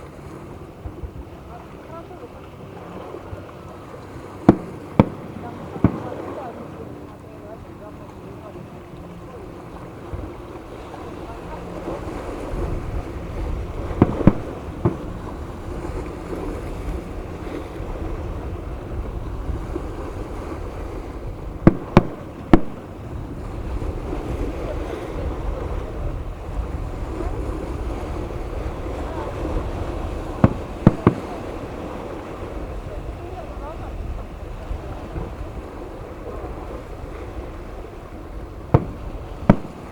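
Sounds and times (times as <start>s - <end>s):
wind noise on microphone: 0.0s - 3.5s, 4.1s - 39.9s
surf: 0.0s - 39.9s
fireworks bangs: 4.5s - 6.2s, 14.0s - 15.2s, 21.6s - 23.1s, 29.7s - 32.0s, 38.6s - 39.9s.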